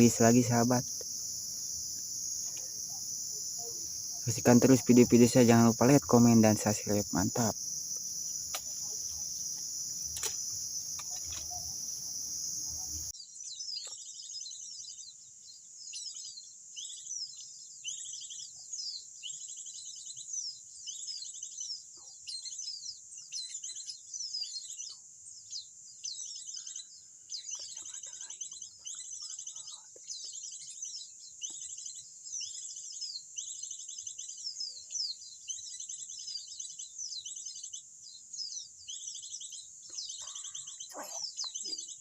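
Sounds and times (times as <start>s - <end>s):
faint insect hum: 0.0s - 13.1s
high-pitched insect drone: 0.0s - 13.1s
small birds chirping and trilling: 0.0s - 42.0s.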